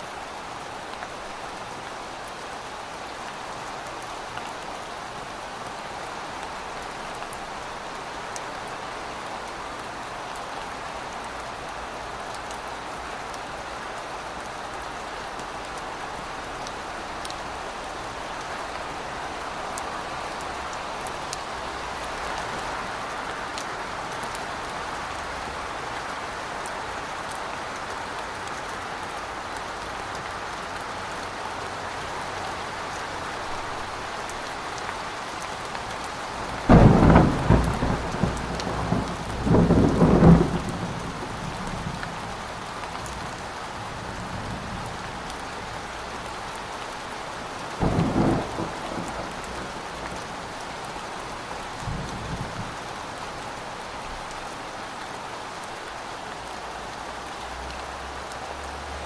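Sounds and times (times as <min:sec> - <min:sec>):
steady rain: 0:00.0 - 0:59.0
thunder rumbling: 0:36.5 - 0:42.2, 0:47.8 - 0:50.4.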